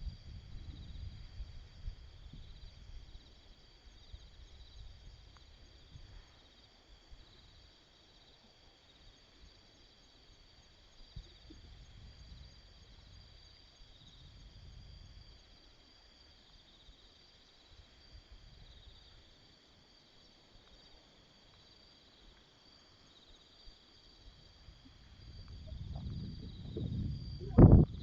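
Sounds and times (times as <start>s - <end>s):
insects chirping and trilling: 0.0s - 28.0s
low rumble: 24.8s - 28.0s.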